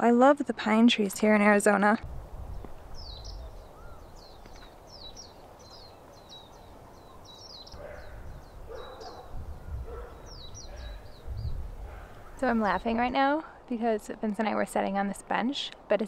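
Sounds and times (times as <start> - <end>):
small birds chirping: 2.4 - 13.4.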